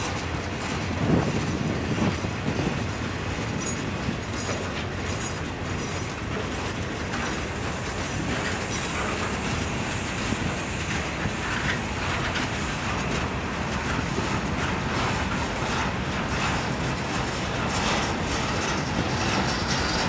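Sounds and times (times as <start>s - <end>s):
steel wheels rattling on rails: 0.0s - 20.0s.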